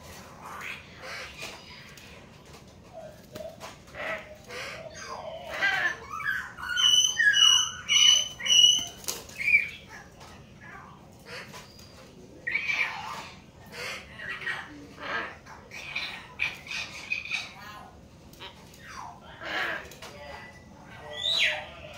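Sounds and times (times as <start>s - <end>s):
mynas gurgling calls: 0.2s - 2.3s, 2.9s - 20.1s
bird harsh squawk: 3.6s - 10.1s.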